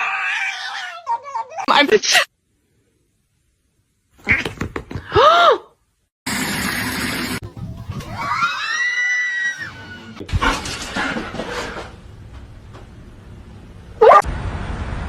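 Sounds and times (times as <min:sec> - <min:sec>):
cat yowling: 0:00.0 - 0:01.7.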